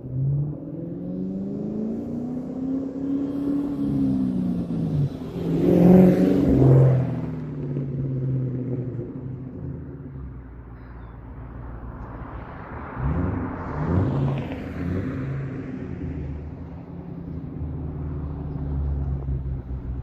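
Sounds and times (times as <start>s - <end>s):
car engine revving: 0.0s - 10.1s, 12.1s - 20.0s.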